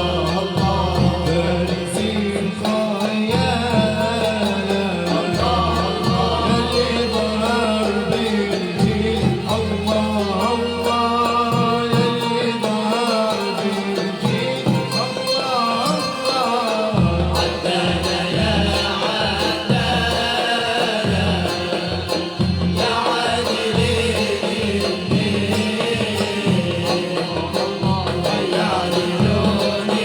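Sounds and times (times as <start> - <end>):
ensemble playing folk music: 0.0 - 30.0.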